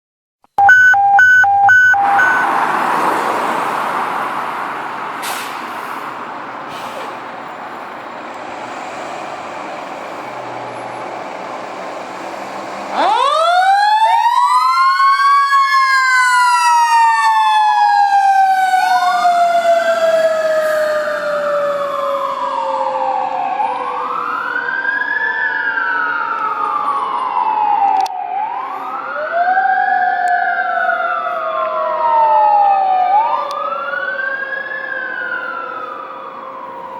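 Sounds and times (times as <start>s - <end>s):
engine and road noise: 0.4s - 36.9s
mechanical siren wailing: 0.6s - 2.6s, 12.9s - 36.9s.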